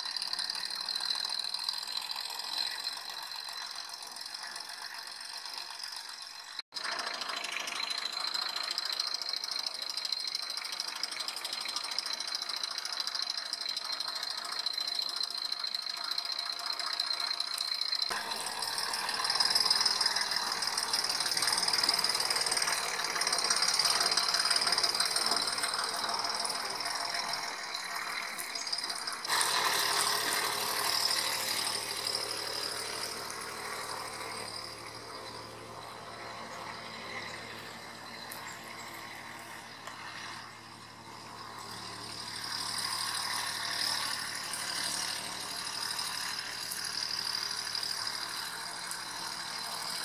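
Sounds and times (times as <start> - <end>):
tractor diesel engine knocking: 18.7 - 35.7.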